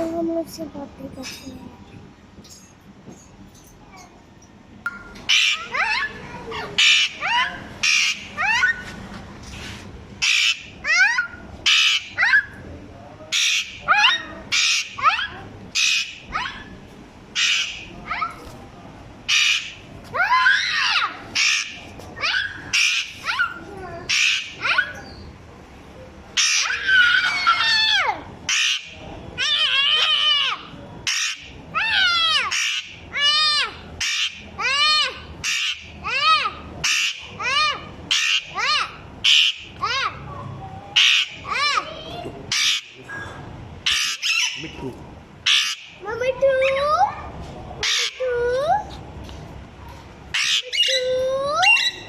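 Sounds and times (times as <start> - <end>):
parrots squawking: 5.2 - 8.8, 10.2 - 12.6, 13.3 - 18.5, 19.3 - 25.2, 26.4 - 47.0, 47.8 - 48.7, 50.3 - 52.0.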